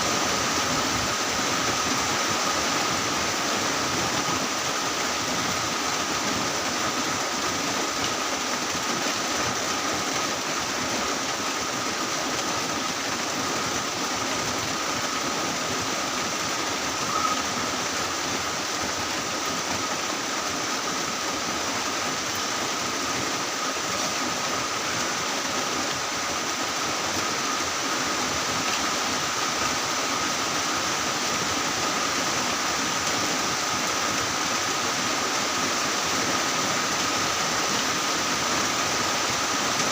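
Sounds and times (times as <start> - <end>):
heavy rain falling: 0.0 - 39.9
thin high tone: 17.0 - 17.7.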